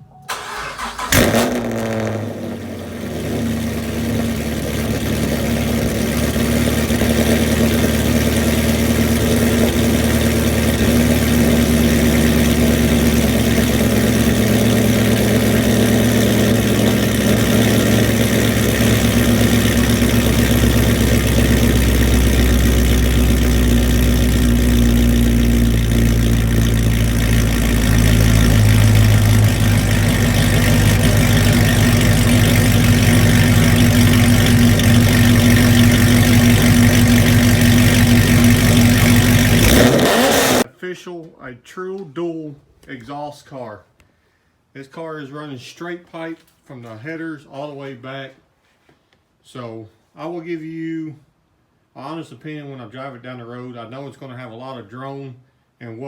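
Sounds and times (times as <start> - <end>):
car engine starting and idling: 0.0 - 40.7.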